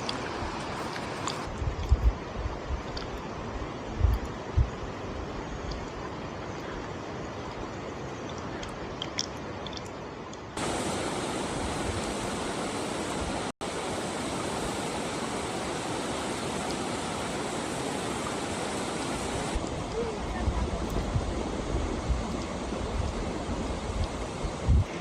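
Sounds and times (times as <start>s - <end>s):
steady rain hiss: 0.0s - 9.5s, 10.1s - 25.0s.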